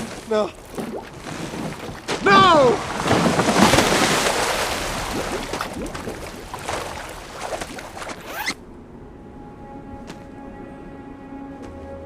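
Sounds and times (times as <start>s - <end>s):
water churning and splashing: 0.0s - 8.6s
faint soft music: 8.6s - 12.0s.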